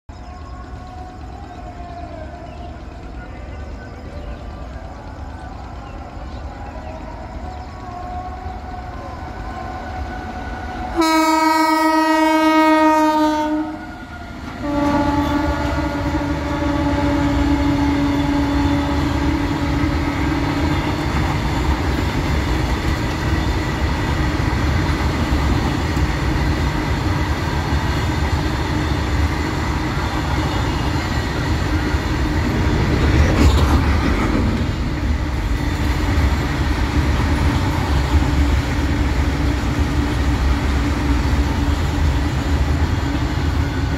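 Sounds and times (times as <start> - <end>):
freight wagons rumbling on rails: 0.1 - 43.9
locomotive horn blasts: 10.8 - 20.6.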